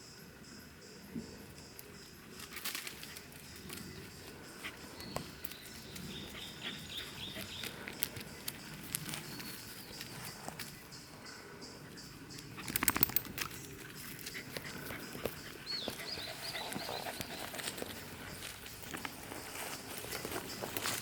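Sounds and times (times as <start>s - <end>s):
bird chirping: 3.4s - 17.6s.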